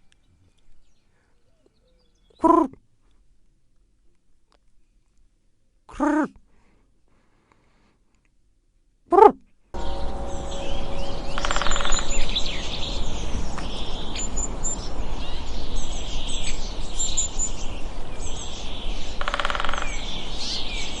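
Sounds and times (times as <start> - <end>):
small birds chirping: 0.0 - 2.7, 9.8 - 21.0
outdoor background noise: 0.0 - 21.0
buzzy rattling bird call: 9.8 - 13.0, 19.2 - 20.6.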